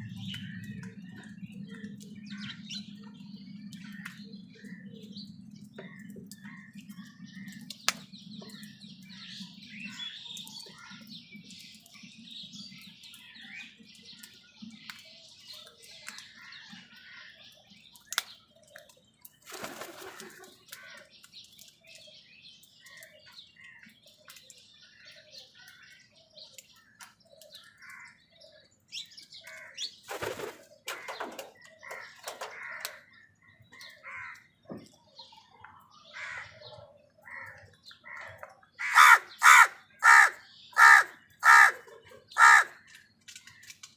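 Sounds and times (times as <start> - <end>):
birds chirping: 0.0 - 43.9
wings flapping: 19.4 - 20.6, 30.0 - 32.6.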